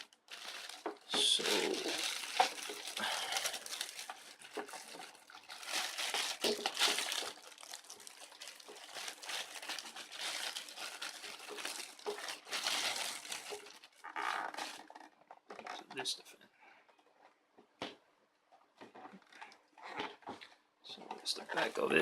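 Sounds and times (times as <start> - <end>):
plastic packaging crinkling: 0.0 - 15.3, 21.2 - 22.0.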